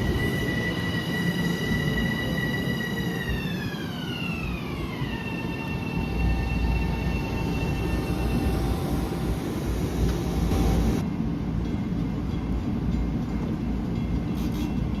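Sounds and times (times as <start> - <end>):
electric train motor whine: 0.0 - 11.0
train rumbling on track: 0.0 - 15.0.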